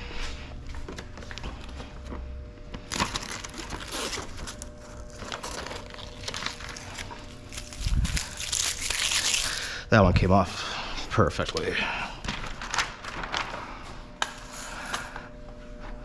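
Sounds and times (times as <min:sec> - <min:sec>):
plastic film crinkling: 0:02.7 - 0:09.8, 0:11.3 - 0:13.8.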